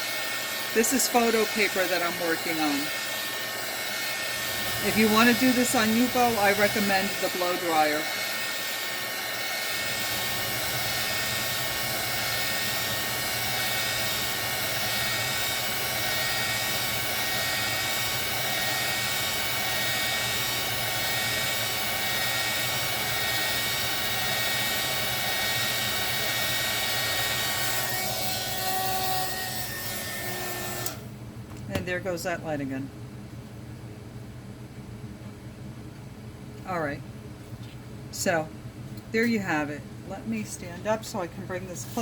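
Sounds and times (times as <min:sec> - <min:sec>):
heat gun blowing air: 0:00.0 - 0:28.0.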